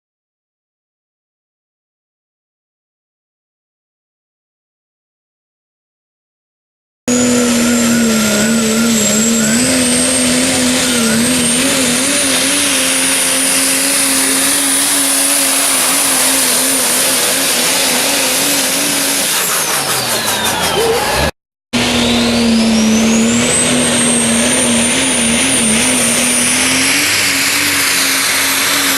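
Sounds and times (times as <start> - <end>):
diesel truck engine at full throttle: 7.1 - 28.9
high whistle: 21.9 - 28.9.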